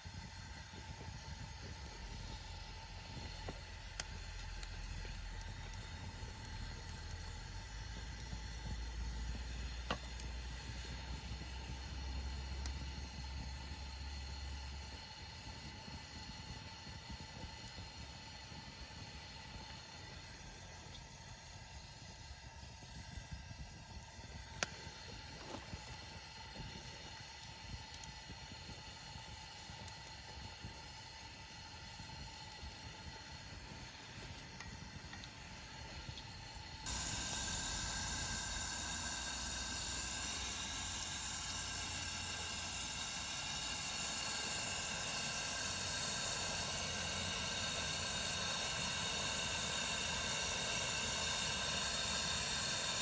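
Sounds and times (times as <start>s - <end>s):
camp stove burner hissing: 0.0s - 53.0s.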